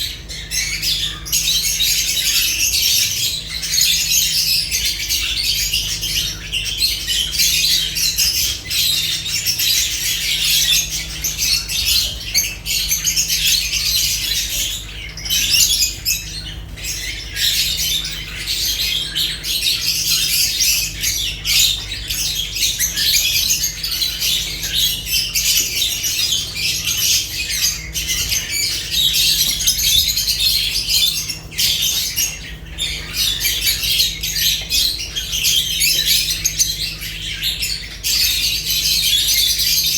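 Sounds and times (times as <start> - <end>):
lovebirds chattering and squawking: 0.0 - 39.9.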